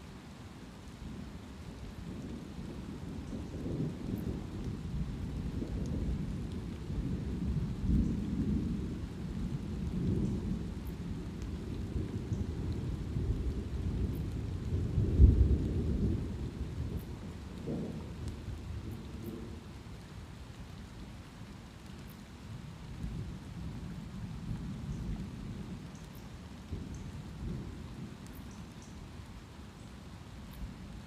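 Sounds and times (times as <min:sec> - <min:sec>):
light rain: 0:00.0 - 0:31.0
thunder rumbling: 0:02.1 - 0:19.7.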